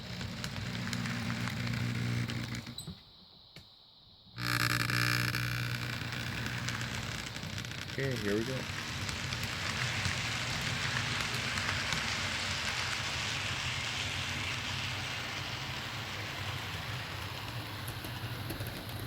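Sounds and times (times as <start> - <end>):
model train motor hum: 0.0 - 2.8, 4.4 - 19.0
wheels hissing on rails: 6.0 - 19.0.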